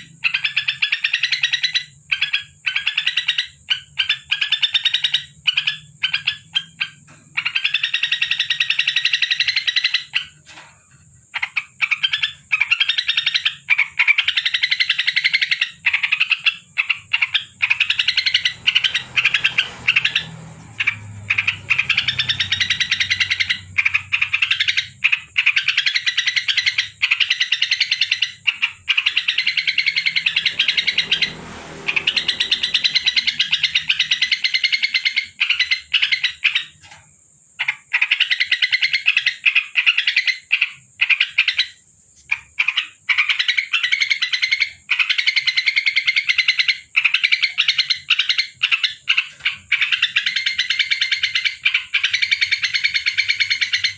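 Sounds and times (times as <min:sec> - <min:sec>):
bulbul rattling chatter: 0:17.7 - 0:24.5.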